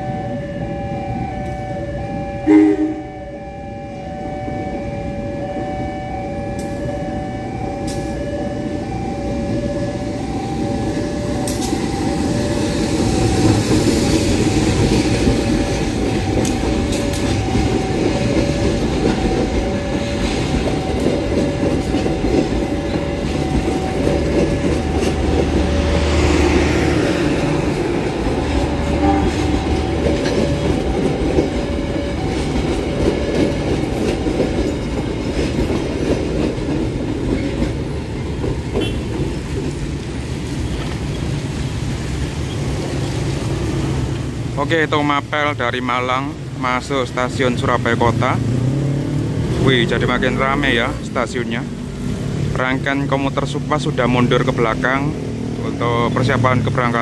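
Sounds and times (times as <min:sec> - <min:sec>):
locomotive engine rumbling: 0:05.6 - 0:57.0
wheels clacking over rail joints: 0:10.3 - 0:44.4.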